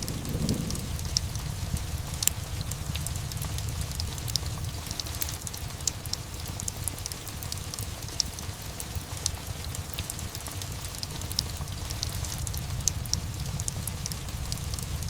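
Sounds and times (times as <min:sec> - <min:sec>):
steady rain: 0:00.0 - 0:15.0
wood fire crackling and popping: 0:00.0 - 0:15.0.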